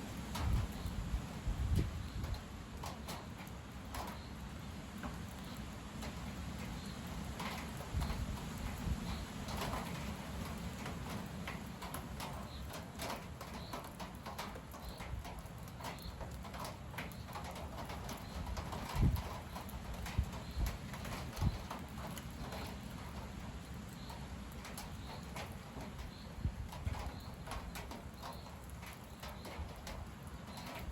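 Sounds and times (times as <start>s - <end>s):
wind buffeting microphone: 0.2s - 4.2s, 6.8s - 12.3s, 17.2s - 23.2s, 24.1s - 30.9s.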